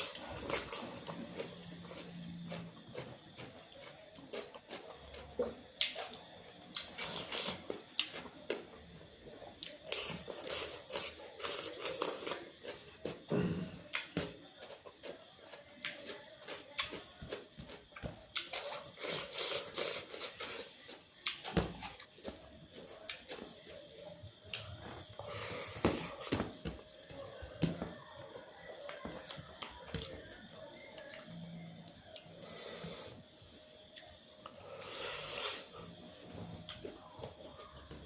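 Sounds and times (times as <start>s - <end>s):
chewing and mouth smacking: 13.9s - 25.3s
hissy breaths: 25.1s - 26.9s, 32.3s - 36.1s.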